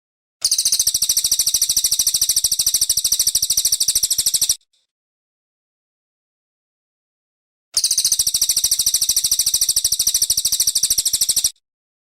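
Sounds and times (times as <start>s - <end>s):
bird singing a rapid high trill: 0.4s - 4.6s, 7.8s - 11.6s.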